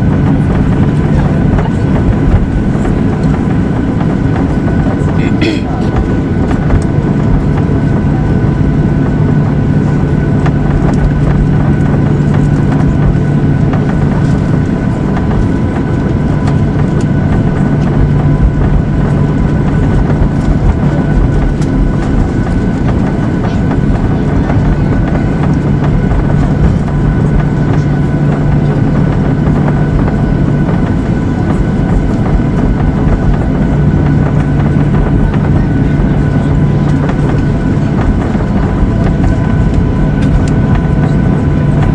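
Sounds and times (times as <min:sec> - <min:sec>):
airliner cabin engine drone: 0:00.0 - 0:41.9.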